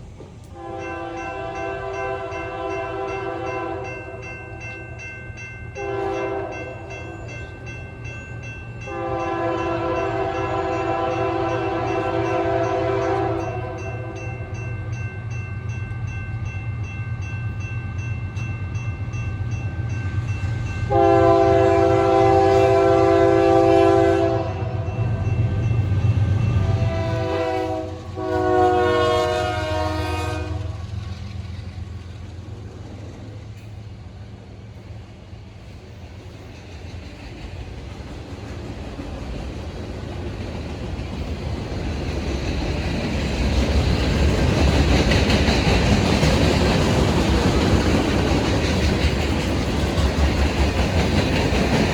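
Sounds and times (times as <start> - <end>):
train noise: 0.0 - 51.9
train air horn blasts: 0.6 - 4.1, 5.8 - 6.8, 8.9 - 14.3, 20.8 - 25.0, 26.3 - 30.9.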